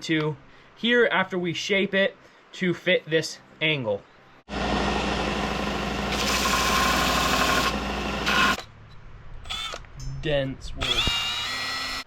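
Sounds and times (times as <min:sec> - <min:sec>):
electric drill boring into wood: 0:04.5 - 0:08.6, 0:09.5 - 0:09.8, 0:10.8 - 0:12.0.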